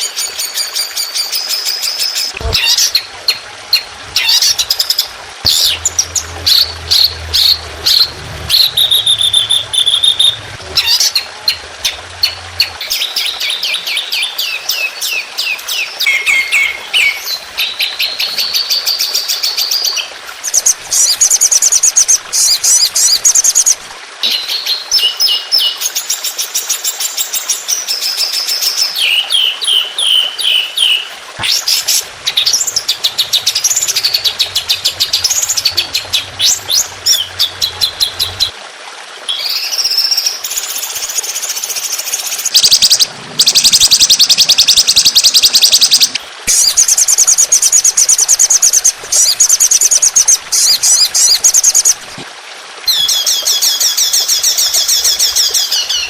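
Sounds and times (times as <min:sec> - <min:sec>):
songbird trills and chirps: 0:12.2 - 0:20.1.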